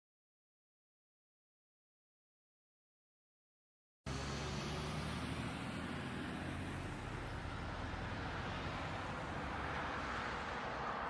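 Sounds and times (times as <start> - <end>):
road noise: 4.1 - 11.0.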